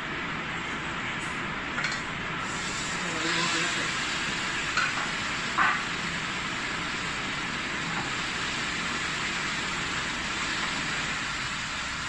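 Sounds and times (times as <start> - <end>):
chicken sizzling in a wok: 2.4 - 12.0.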